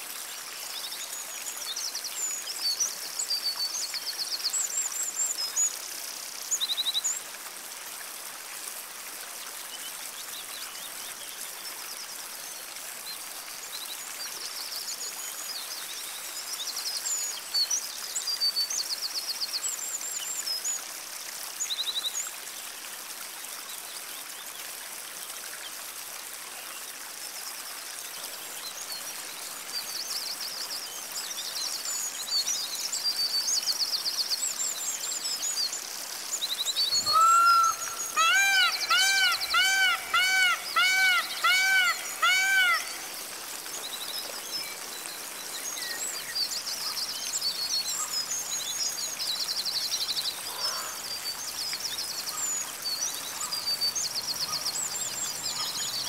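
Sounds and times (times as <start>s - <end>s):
songbirds singing: 34.2s - 56.0s.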